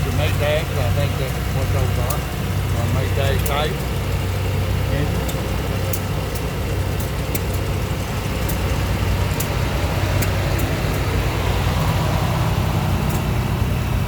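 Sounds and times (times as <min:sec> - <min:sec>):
engine running: 0:00.0 - 0:14.0
sharp clicks: 0:05.2 - 0:12.2, 0:13.0 - 0:13.4.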